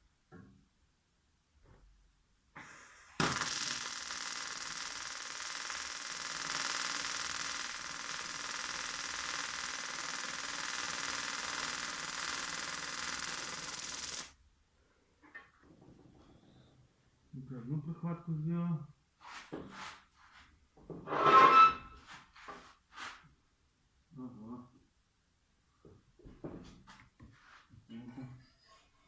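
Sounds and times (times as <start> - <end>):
short high hiss: 2.6 - 4.7
welding arc hissing and buzzing: 2.6 - 14.3.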